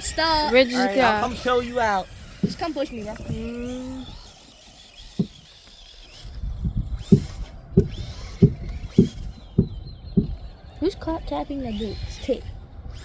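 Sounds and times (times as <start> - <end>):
footsteps walking: 5.2 - 5.4.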